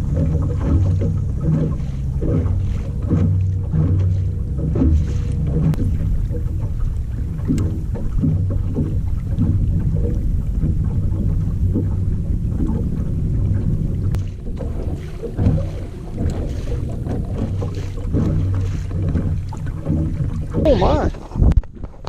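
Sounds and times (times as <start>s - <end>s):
light clicks and knocks: 0.0s - 20.7s
boat engine hum: 0.0s - 22.0s.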